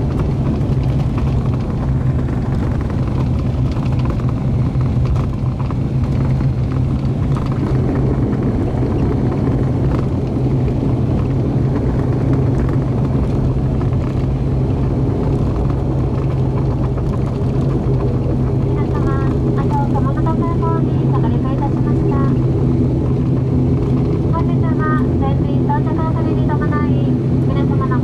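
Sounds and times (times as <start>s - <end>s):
propeller plane cabin drone: 0.0s - 28.0s.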